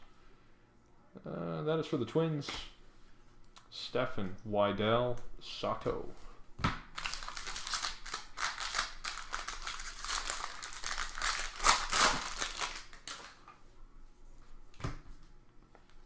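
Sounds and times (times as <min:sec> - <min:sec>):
plastic wrapper crinkling and tearing: 0:06.9 - 0:13.5
cards rustling: 0:07.0 - 0:13.5.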